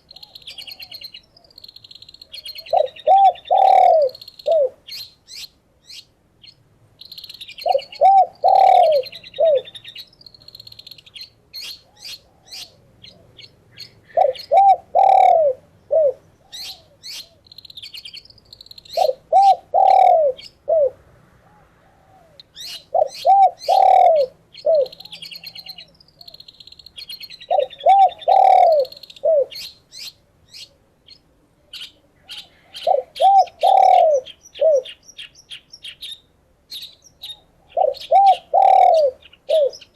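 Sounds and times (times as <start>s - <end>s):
dove cooing: 0.0s - 1.6s, 2.3s - 5.0s, 7.6s - 10.0s, 11.6s - 17.5s, 18.9s - 26.4s, 27.4s - 29.7s, 32.2s - 35.0s, 37.2s - 39.9s
songbird chirping: 0.0s - 39.9s.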